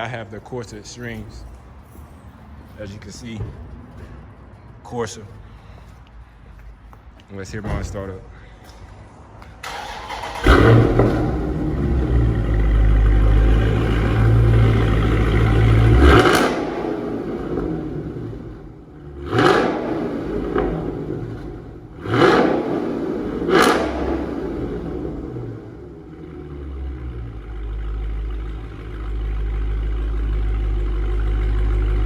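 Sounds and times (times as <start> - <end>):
car engine idling and revving: 9.7 - 32.0.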